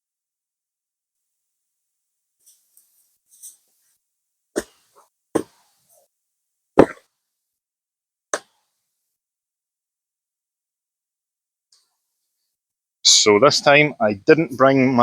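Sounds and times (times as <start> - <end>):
sharp knocks: 5.4 - 5.6, 6.8 - 7.0.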